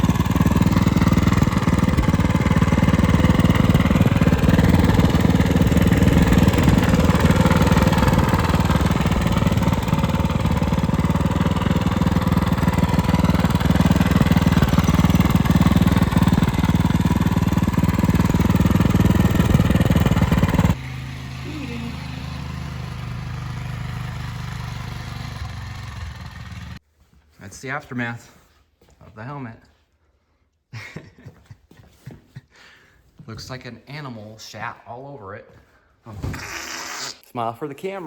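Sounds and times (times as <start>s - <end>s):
small engine running: 0.0s - 26.8s.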